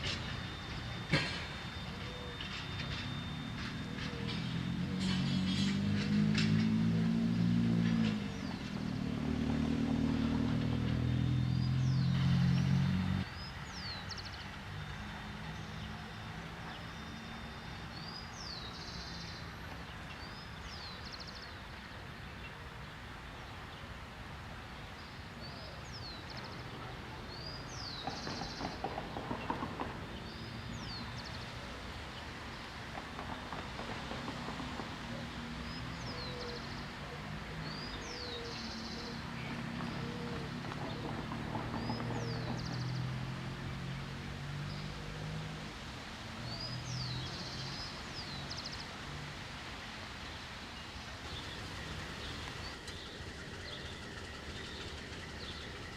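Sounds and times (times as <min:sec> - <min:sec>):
loud low droning tones: 0:00.0 - 0:19.7
steady low hum: 0:00.0 - 0:21.0
birds chirping: 0:00.0 - 0:45.4, 0:50.7 - 0:55.9.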